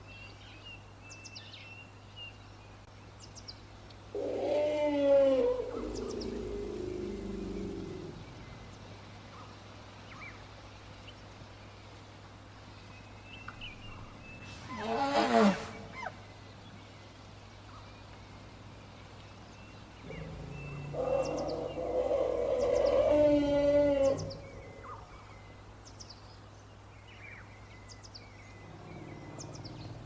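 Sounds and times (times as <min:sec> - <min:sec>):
elephant call: 0:04.2 - 0:08.7, 0:14.5 - 0:16.2, 0:20.0 - 0:25.3
faint bird chirps: 0:19.4 - 0:26.2.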